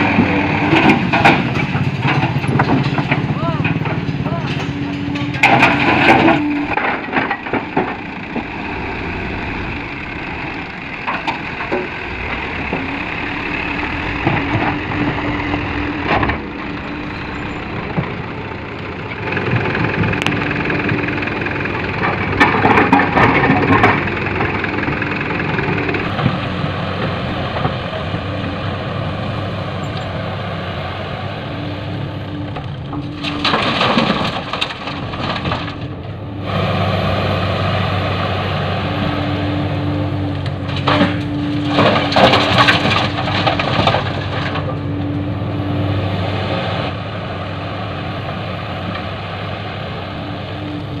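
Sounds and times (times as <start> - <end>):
diesel engine running: 0.0 - 51.0
rocks clattering in truck bed: 0.7 - 8.1, 33.0 - 35.9, 40.6 - 44.8.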